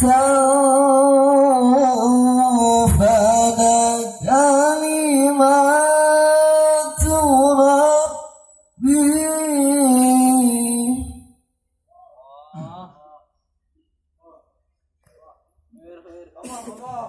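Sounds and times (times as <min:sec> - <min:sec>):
man reciting melodically: 0:00.0 - 0:11.3.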